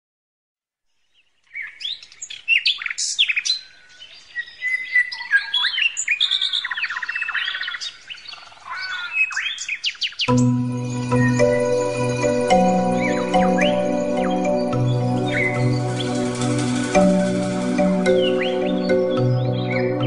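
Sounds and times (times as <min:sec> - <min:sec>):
songbirds chirping and singing: 0:01.1 - 0:20.0
music: 0:10.3 - 0:20.0.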